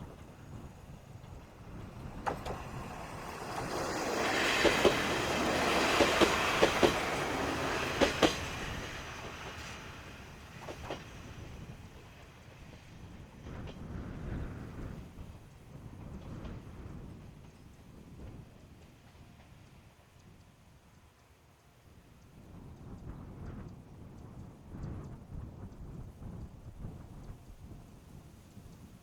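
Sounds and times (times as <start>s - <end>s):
wheels clicking over rail joints: 0.0s - 12.4s
diesel railcar running past: 0.0s - 29.0s.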